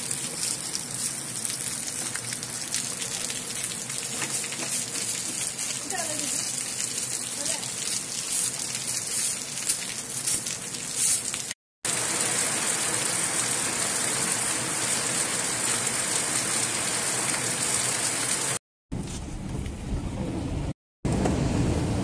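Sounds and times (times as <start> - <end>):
heavy rain on water: 0.0 - 10.8, 11.9 - 18.6.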